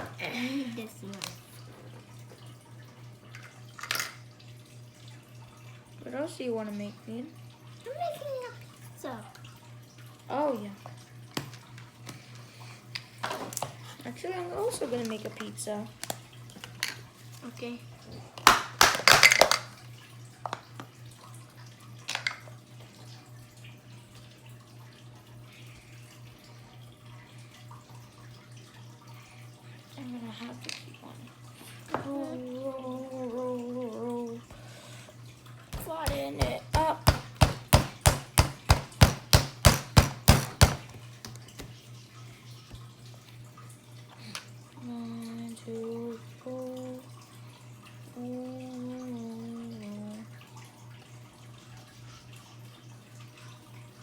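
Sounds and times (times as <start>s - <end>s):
dough thumping on tabletop: 35.8s - 41.7s.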